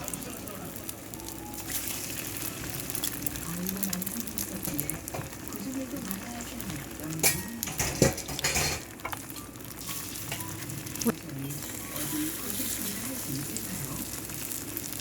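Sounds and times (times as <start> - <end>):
food sizzling in a frying pan: 0.0 - 15.0
utensil clinking against pan: 7.2 - 9.2.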